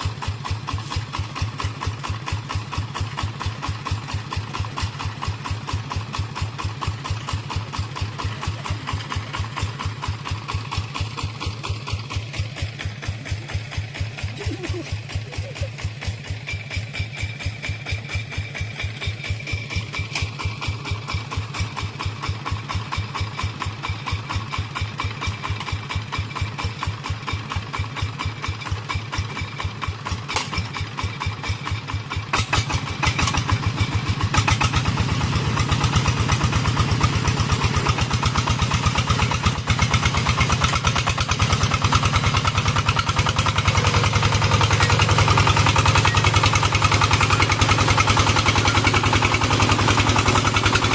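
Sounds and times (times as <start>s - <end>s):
single-cylinder diesel engine running: 0.0s - 50.9s.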